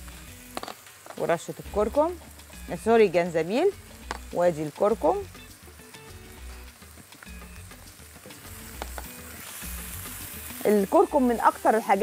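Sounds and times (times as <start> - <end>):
chicken and onion sizzling: 0.0 - 12.0
spatula tapping and scraping: 8.7 - 9.2.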